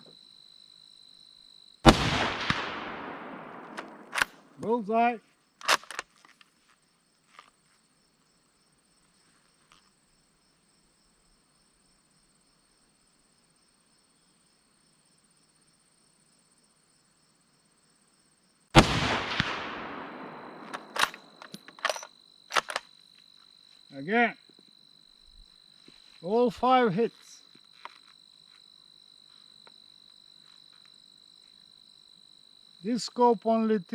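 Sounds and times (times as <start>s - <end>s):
insects trilling: 0.0s - 1.9s, 2.5s - 33.9s
rifle shot echoing: 1.8s - 4.6s, 18.8s - 22.8s
sharp clicks: 3.5s - 4.7s, 5.6s - 6.1s, 19.1s - 22.9s.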